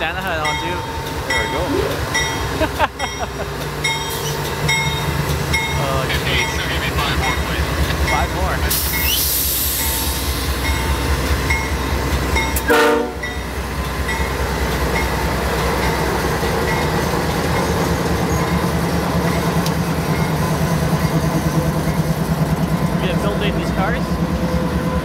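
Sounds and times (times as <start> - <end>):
electronic locomotive bell dinging: 0.0 - 9.2, 9.8 - 22.2
rumble and clatter of train cars: 0.0 - 25.0
short train horn toot: 12.6 - 13.3.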